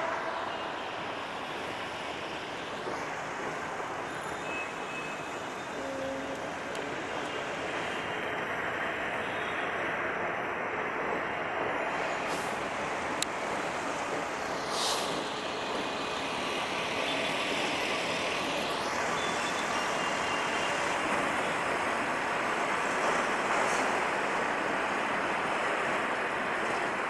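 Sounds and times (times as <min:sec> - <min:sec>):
train wheels rumbling on rail: 0:00.0 - 0:27.0
hissing air bursts: 0:14.6 - 0:15.3.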